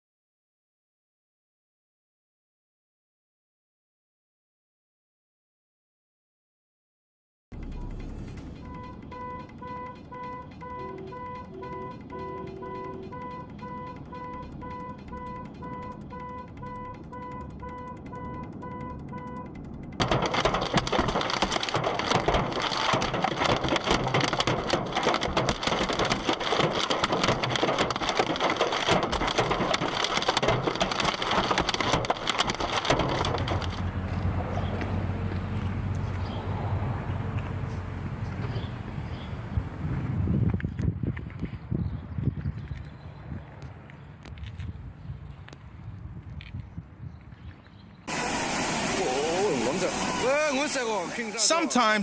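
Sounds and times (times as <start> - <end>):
low rumble: 7.5 - 43.4, 48.1 - 51.3
rapid repeating beep: 7.6 - 20.0
heavy rain patter: 20.0 - 34.2.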